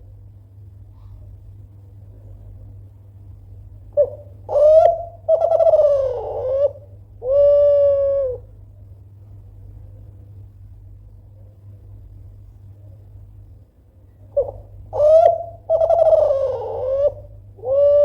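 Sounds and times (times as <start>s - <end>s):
steady low hum: 0.0s - 18.0s
dove cooing: 3.9s - 8.6s, 14.3s - 18.0s.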